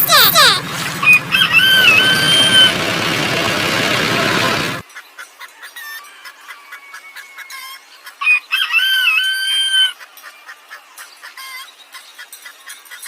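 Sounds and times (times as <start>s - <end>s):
chickens chirping and clucking: 0.0s - 13.0s
rooster crowing: 1.0s - 4.8s, 8.2s - 9.9s.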